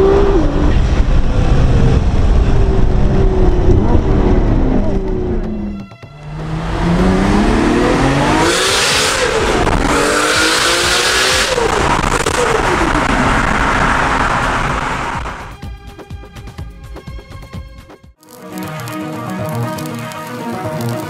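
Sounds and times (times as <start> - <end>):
sports car engine accelerating: 0.0 - 15.4.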